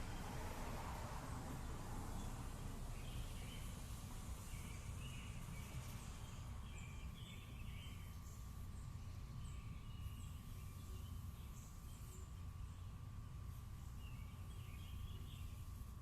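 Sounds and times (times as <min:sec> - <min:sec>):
birds chirping: 0:03.0 - 0:15.8.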